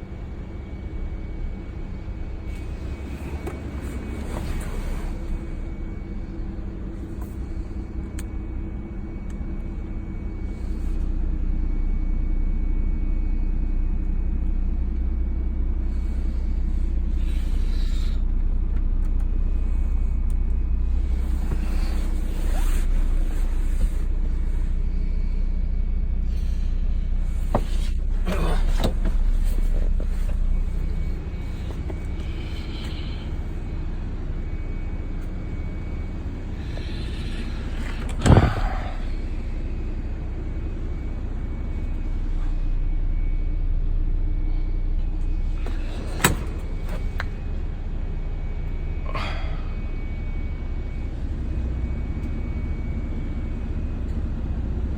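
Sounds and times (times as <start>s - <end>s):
car engine idling: 0.0s - 54.9s.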